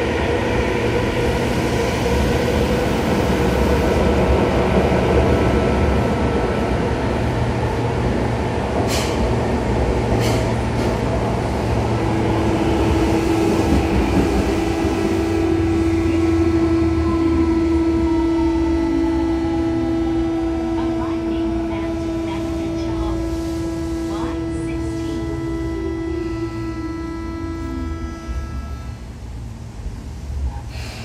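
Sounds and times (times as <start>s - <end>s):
train wheels rumbling on rail: 0.0s - 26.4s
steady hum: 11.1s - 30.4s
whining traction motor tones: 11.2s - 29.5s.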